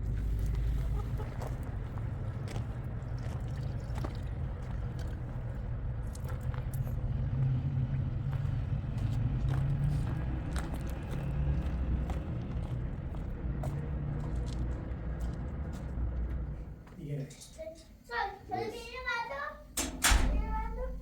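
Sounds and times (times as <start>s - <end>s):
vehicle engine rumbling: 0.0s - 16.9s, 19.6s - 21.0s
light clicks and knocks: 19.8s - 21.0s.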